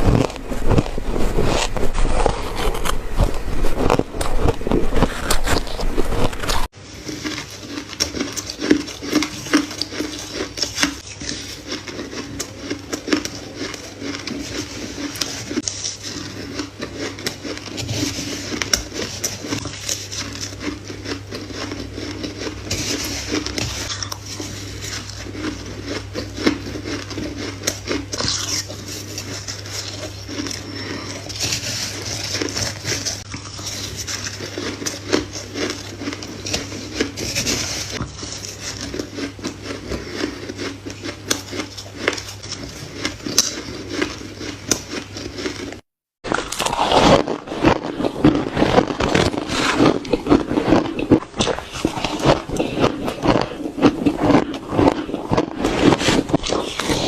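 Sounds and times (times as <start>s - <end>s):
crunching and chewing ice: 0.0s - 57.0s
low steady hum: 0.0s - 57.0s.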